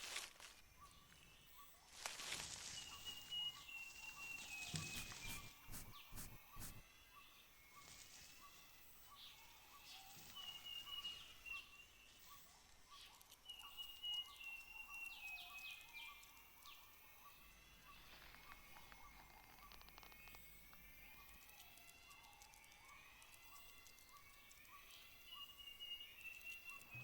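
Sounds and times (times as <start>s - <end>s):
bird whistling: 4.8s - 6.8s
chorus of short pips: 4.8s - 6.8s.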